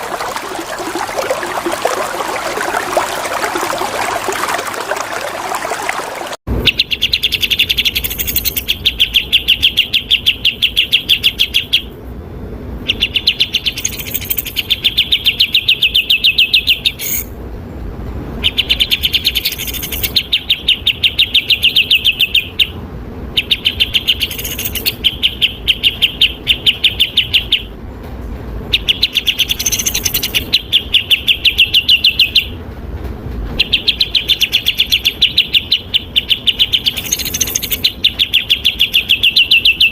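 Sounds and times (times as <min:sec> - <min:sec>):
running water: 0:00.0 - 0:06.4
songbird rapid trills: 0:00.0 - 0:11.9, 0:12.9 - 0:17.3, 0:18.5 - 0:22.7, 0:23.4 - 0:27.7, 0:28.8 - 0:32.6, 0:33.6 - 0:39.9.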